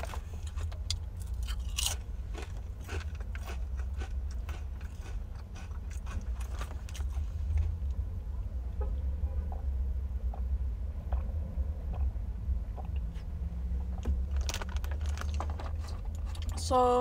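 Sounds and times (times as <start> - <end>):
crunching crisp chips: 0.0 - 7.7, 14.2 - 16.6
steady low hum: 0.0 - 17.0.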